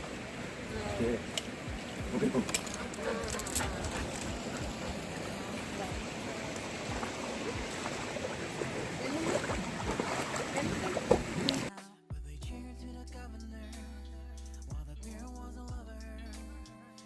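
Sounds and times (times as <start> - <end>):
flowing water rushing: 0.0 - 11.7.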